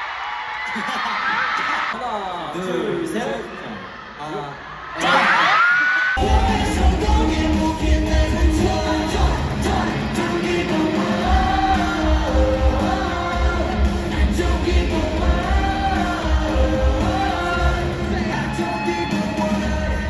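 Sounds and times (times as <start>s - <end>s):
pop song with sung melody: 4.5s - 20.0s
heavy steady bass beat: 6.2s - 10.2s, 11.2s - 18.5s.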